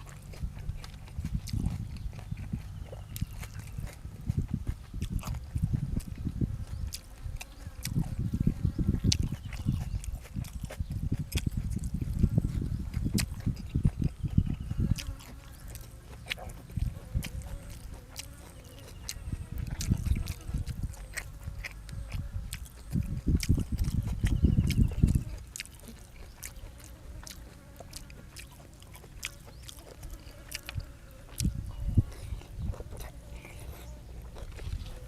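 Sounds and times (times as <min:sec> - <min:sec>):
person chewing food: 0:00.0 - 0:35.0
wet mouth clicks and smacks: 0:19.0 - 0:26.6.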